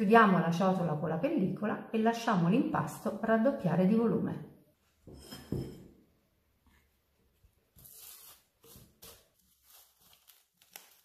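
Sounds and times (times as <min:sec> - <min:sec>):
cling film crinkling: 0:07.8 - 0:11.0.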